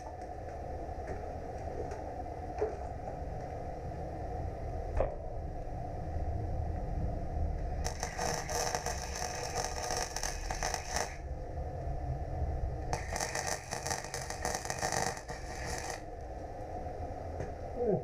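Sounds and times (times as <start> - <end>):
welding crackle: 0.0 - 0.4, 7.8 - 11.2, 12.9 - 16.4
low hum: 0.0 - 18.0.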